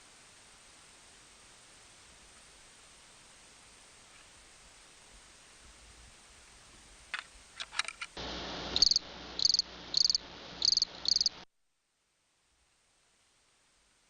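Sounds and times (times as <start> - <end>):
steady hiss: 0.0 - 14.0
cricket chirping: 8.7 - 11.4.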